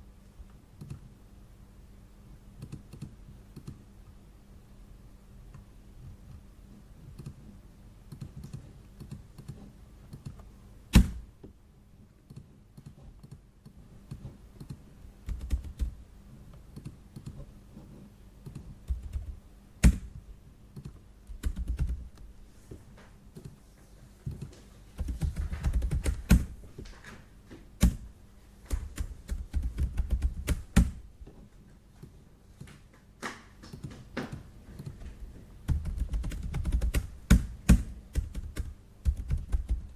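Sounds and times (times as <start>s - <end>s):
keyboard typing clicks: 0.8s - 1.1s, 2.6s - 3.8s, 7.1s - 7.4s, 8.1s - 11.2s, 12.2s - 16.0s, 16.7s - 17.5s, 18.4s - 22.3s
sharp keyboard clacks: 14.1s - 16.0s, 18.4s - 20.2s, 20.8s - 22.2s, 24.2s - 26.6s, 28.7s - 31.1s, 33.6s - 39.9s.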